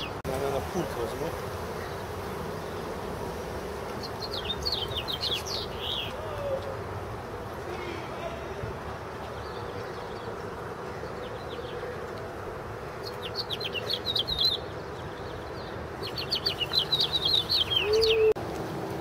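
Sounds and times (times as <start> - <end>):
songbird chirping: 3.8 - 6.8, 9.1 - 18.4.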